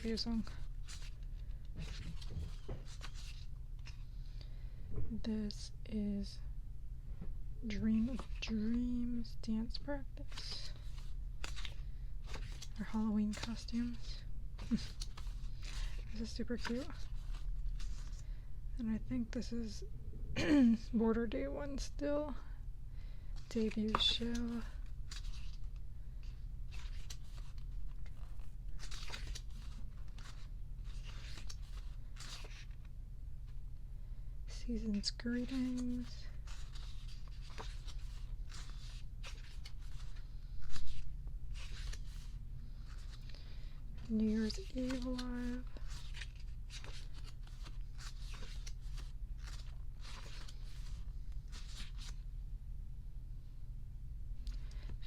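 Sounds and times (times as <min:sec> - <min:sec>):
steady low hum: 0:00.0 - 0:55.0
book pages turning: 0:00.1 - 0:04.0, 0:10.2 - 0:18.3, 0:23.4 - 0:32.9, 0:35.0 - 0:52.2.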